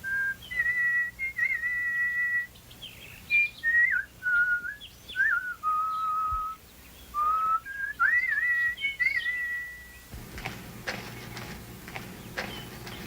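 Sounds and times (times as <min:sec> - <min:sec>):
person whistling bird-song melody: 0:00.0 - 0:10.0.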